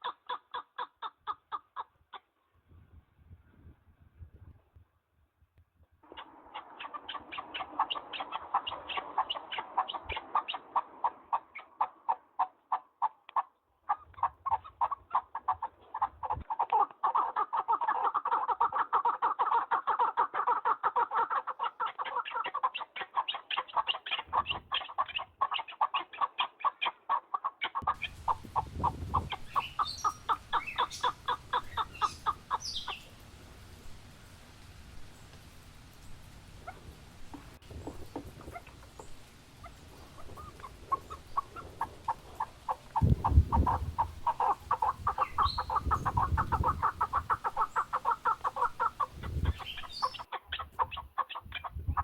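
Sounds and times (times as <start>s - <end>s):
small birds chirping: 6.0s - 52.0s
partridges clucking: 6.1s - 12.3s, 27.8s - 33.2s, 36.6s - 52.0s.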